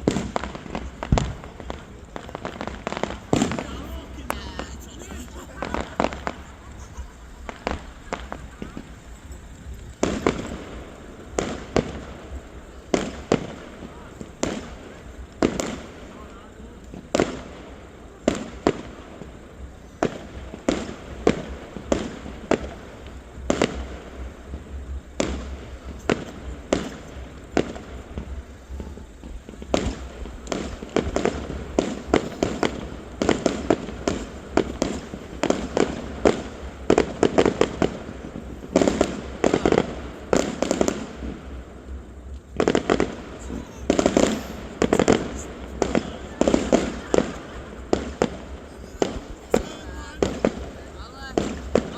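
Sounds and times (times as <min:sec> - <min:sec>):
fireworks bangs: 0:00.0 - 0:51.9.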